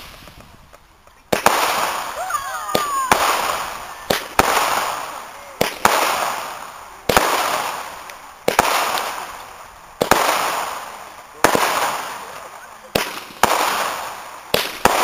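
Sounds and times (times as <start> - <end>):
fireworks bursting with bangs: 0.0 - 15.0
fireworks hissing: 0.0 - 15.0.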